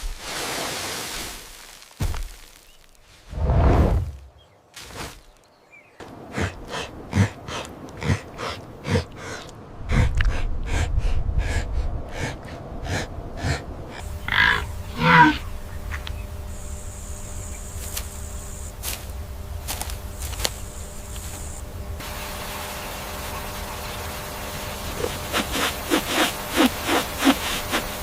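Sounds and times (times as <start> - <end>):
animal deep grunt: 6.0 - 15.6
pitched animal calls: 6.0 - 16.3.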